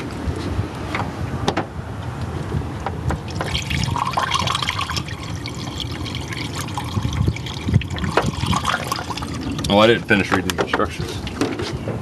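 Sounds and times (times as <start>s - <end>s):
water pouring into radiator: 3.3s - 10.0s.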